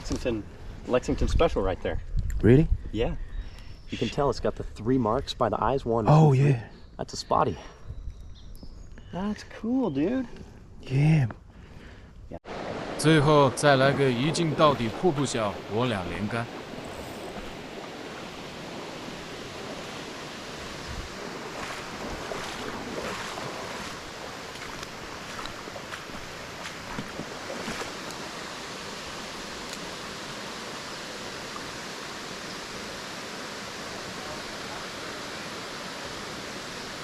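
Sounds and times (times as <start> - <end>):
creek waterfall rushing: 12.5 - 37.0.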